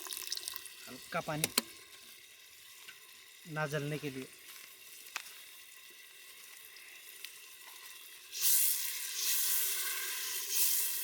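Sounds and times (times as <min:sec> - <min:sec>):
paste sizzling in oil: 0:04.4 - 0:11.0.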